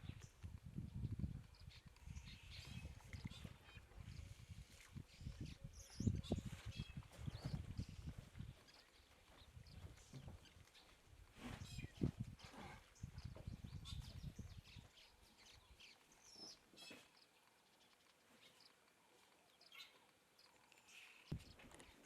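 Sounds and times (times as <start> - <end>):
soft low thumps and rumble: 0.0 - 8.6, 11.2 - 14.9
bird chirps: 1.5 - 22.0.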